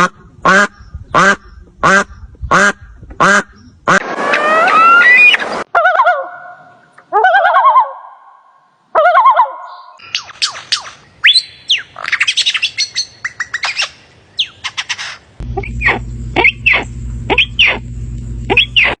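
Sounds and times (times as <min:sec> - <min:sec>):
downward-sweeping bird calls: 0:03.6 - 0:17.8, 0:18.5 - 0:19.0
birds chirping and whistling: 0:04.4 - 0:05.6, 0:09.6 - 0:17.8, 0:18.5 - 0:19.0
steady low hum: 0:15.2 - 0:19.0.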